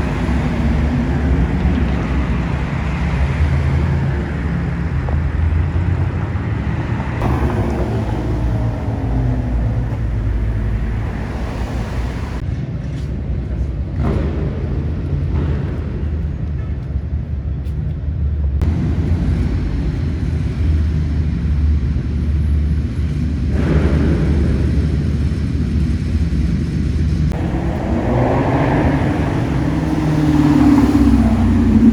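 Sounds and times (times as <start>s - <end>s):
car passing or revving: 0.0s - 12.4s, 27.3s - 31.9s
car engine rumble: 0.0s - 31.9s.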